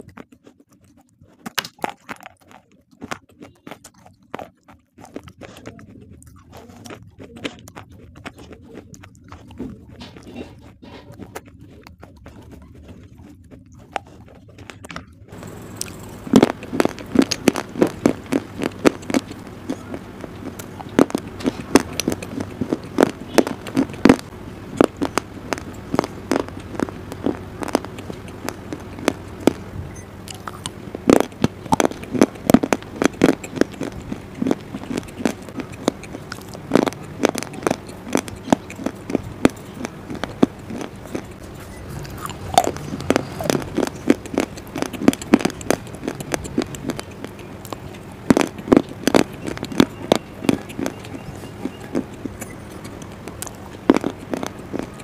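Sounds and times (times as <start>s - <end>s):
crunching stone: 0.0s - 29.7s, 30.3s - 55.0s
crunching biscuits: 0.0s - 55.0s
low steady hum: 0.0s - 55.0s.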